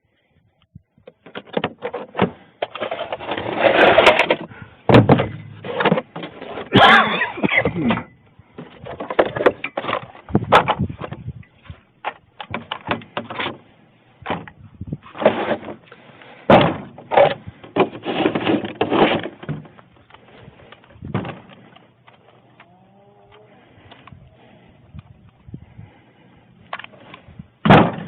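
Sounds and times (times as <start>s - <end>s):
knocks and clunks: 1.0s - 6.9s, 7.5s - 13.6s, 14.2s - 15.8s, 16.5s - 19.9s, 20.7s - 21.8s, 27.6s - 28.0s
scraping and rustling: 1.2s - 4.6s, 5.4s - 6.8s, 15.0s - 24.6s.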